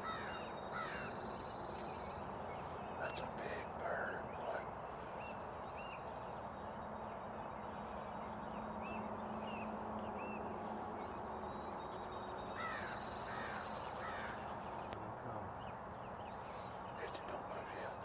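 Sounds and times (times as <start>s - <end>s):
crow cawing: 0.0s - 1.2s, 12.4s - 14.8s
faint small birds chirping: 0.0s - 15.0s
outdoor background noise: 0.0s - 18.0s.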